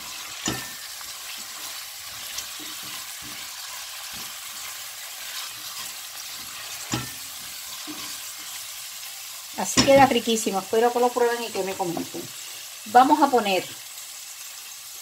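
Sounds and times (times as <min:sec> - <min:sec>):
spatula scraping and tapping: 0:00.0 - 0:08.7, 0:09.7 - 0:10.2
vegetables sizzling in oil: 0:00.0 - 0:15.0
spatula knocking pot: 0:00.2 - 0:08.6, 0:09.6 - 0:10.3.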